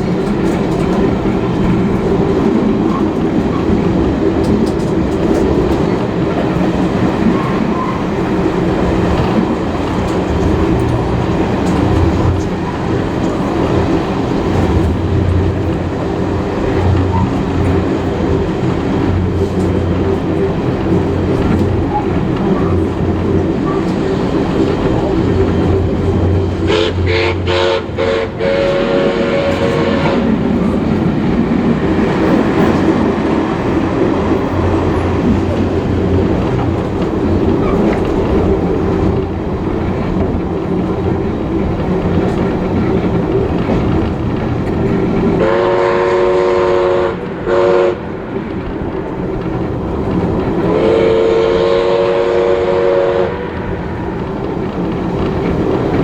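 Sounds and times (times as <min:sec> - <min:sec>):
train rumbling on rails: 0:00.0 - 0:56.0
steam locomotive whistle: 0:26.6 - 0:30.3, 0:45.4 - 0:48.0, 0:50.7 - 0:53.6.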